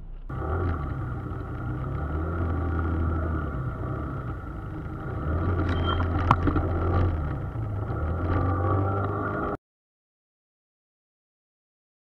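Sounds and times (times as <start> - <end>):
engine and road drone in cabin: 0.0 - 9.6.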